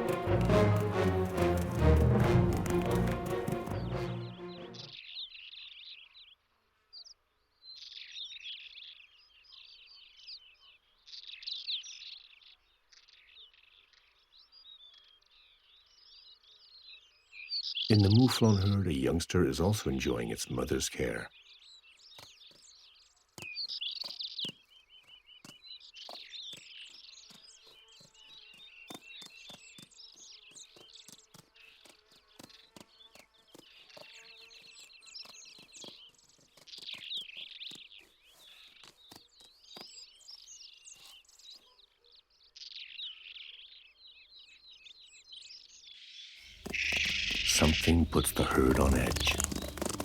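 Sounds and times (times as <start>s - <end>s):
small birds chirping and trilling: 2.6s - 50.0s
fast buzzy trilling: 46.6s - 50.0s.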